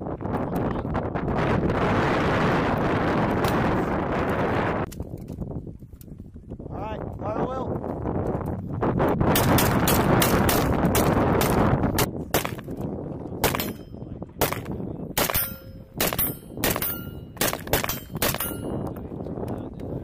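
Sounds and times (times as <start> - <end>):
rifle shots: 13.4 - 18.7
metallic ring: 15.2 - 18.9.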